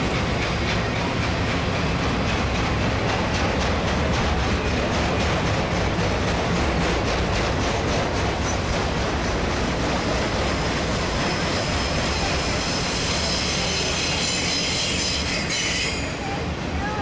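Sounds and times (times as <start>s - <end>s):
freight train rumbling past: 0.0s - 17.0s
steel wheels squealing: 8.4s - 16.4s.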